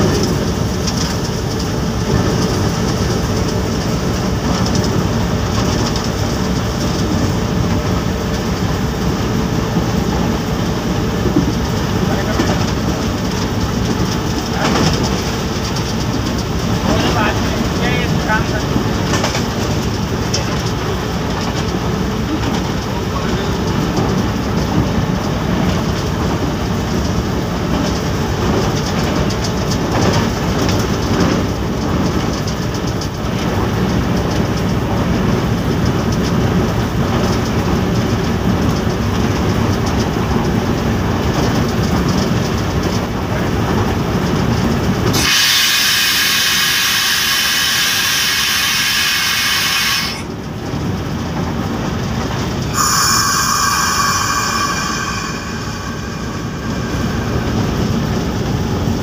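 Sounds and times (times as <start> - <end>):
diesel locomotive rumble: 0.0 - 59.0
loud high-pitched tone: 52.6 - 59.0.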